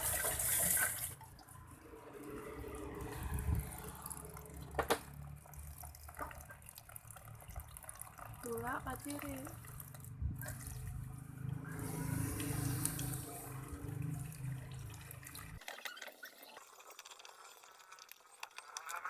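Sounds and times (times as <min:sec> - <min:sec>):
water splashing in washing machine: 0:00.0 - 0:19.0
water trickling and dripping: 0:00.0 - 0:19.0.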